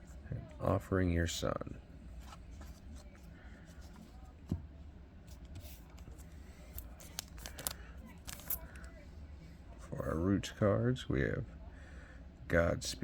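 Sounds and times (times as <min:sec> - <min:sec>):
cards rustling and clicking: 0:05.3 - 0:08.9.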